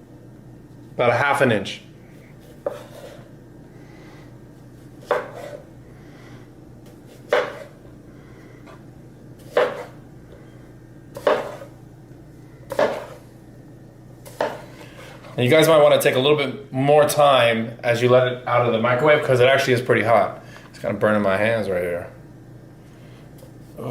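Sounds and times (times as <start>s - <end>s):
knife slicing potato on board: 2.4s - 3.3s, 5.0s - 5.6s, 6.9s - 7.8s, 9.4s - 10.0s, 11.1s - 11.8s, 12.7s - 13.2s, 14.2s - 15.4s.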